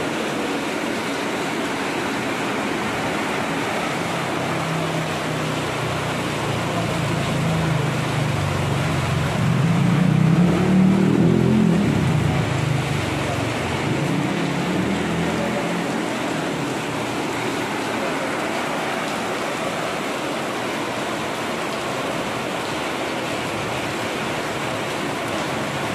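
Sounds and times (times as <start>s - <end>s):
heavy rain falling: 0.0s - 25.9s
motorbike engine passing: 6.8s - 16.6s.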